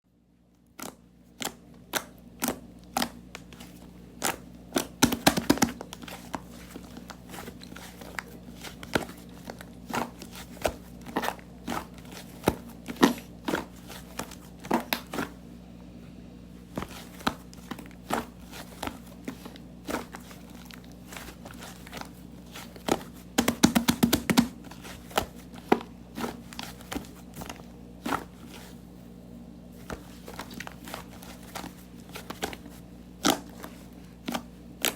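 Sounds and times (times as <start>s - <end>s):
low hum: 14.1s - 23.3s.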